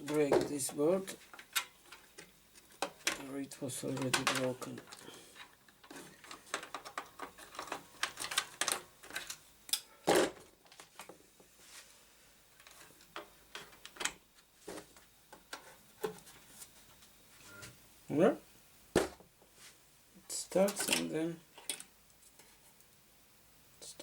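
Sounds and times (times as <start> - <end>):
clicks and knocks of hardware handling: 3.9 - 9.8, 20.6 - 21.9.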